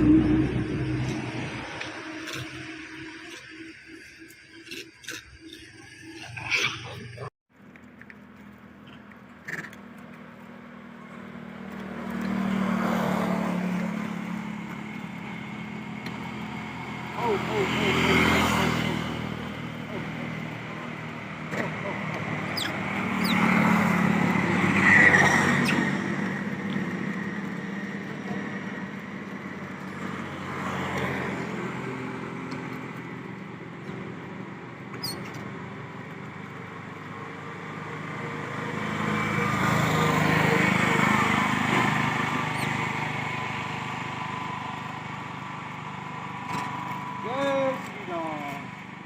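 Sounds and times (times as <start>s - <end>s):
motor vehicles passing: 0.0s - 49.0s.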